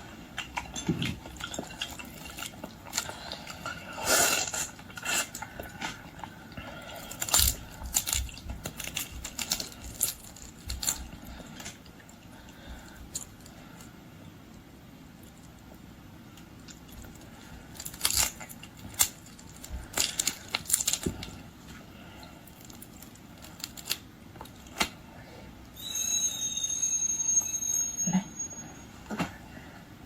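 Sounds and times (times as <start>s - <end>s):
prawn shell cracking: 6.9s - 11.8s, 16.7s - 21.4s, 22.5s - 25.0s
high-pitched squeak: 25.8s - 29.2s.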